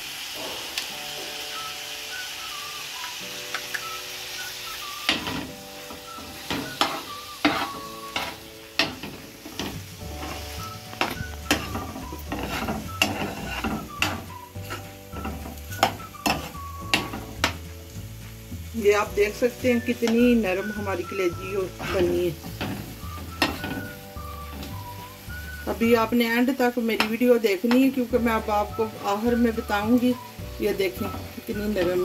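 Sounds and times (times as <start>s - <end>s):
liver sizzling in a pan: 0.0s - 32.0s
metal spoon scraping a pan: 6.2s - 17.7s, 21.6s - 24.8s.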